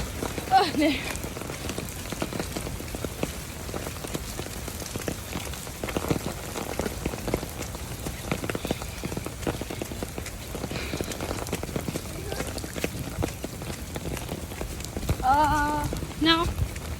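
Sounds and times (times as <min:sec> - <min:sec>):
raindrops tapping: 0:00.0 - 0:16.9
steady rain falling: 0:00.0 - 0:16.9.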